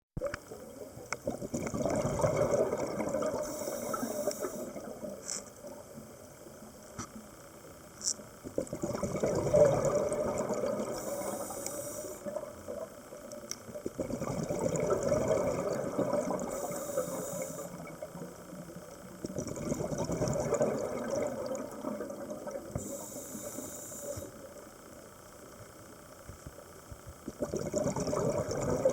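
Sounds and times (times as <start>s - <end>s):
exhaust bubbles underwater: 0.2s - 6.5s, 8.4s - 24.3s, 27.3s - 28.9s
regulator inhalation hiss: 3.4s - 4.8s, 10.8s - 12.6s, 16.4s - 18.0s, 22.8s - 25.1s.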